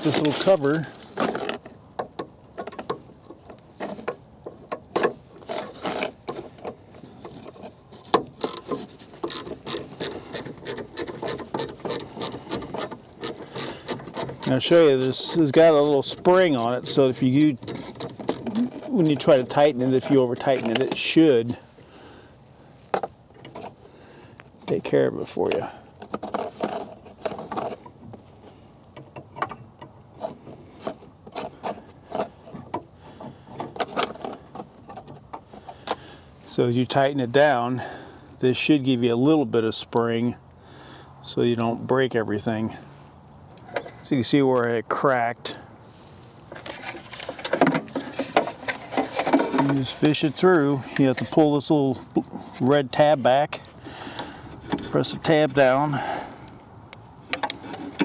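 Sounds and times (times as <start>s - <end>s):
hands scraping plastic parts: 0.0s - 21.8s, 24.7s - 36.1s, 46.0s - 58.0s
light clicks and knocks of fastener: 0.1s - 21.6s, 56.5s - 58.0s.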